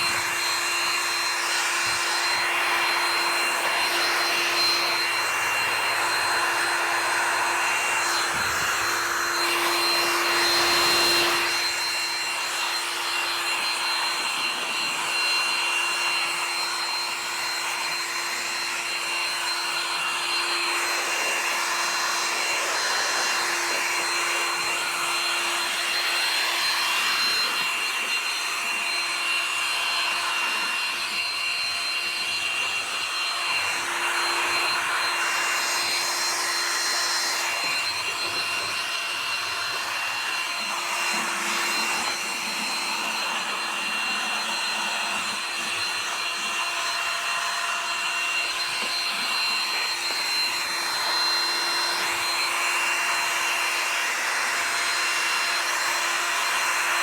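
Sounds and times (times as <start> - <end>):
small electric motor tool whining: 0.0 - 57.0.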